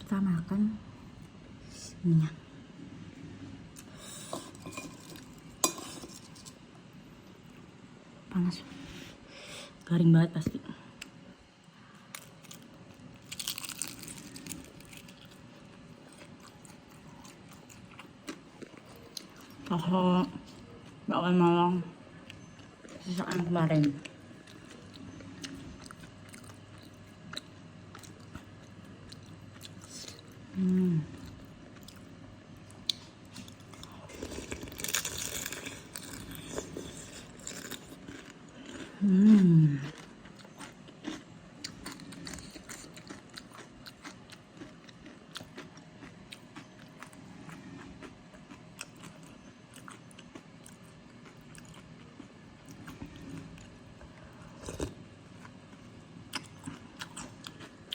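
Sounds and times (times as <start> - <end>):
person chewing noodles: 12.1 - 19.7, 23.8 - 57.9
person humming: 30.5 - 31.1.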